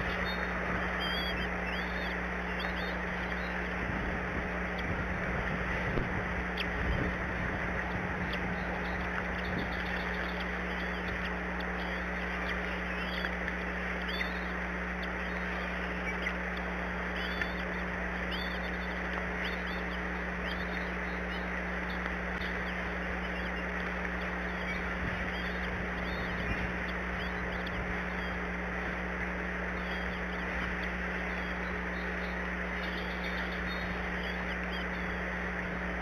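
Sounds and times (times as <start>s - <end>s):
eagles squeaky calls: 0.0s - 3.7s, 22.4s - 28.4s
low electrical hum: 0.0s - 36.0s.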